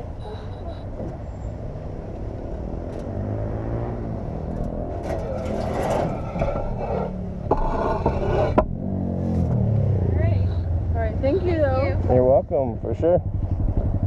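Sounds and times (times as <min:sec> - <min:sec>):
motorcycle engine accelerating: 0:01.6 - 0:07.5, 0:08.2 - 0:14.0.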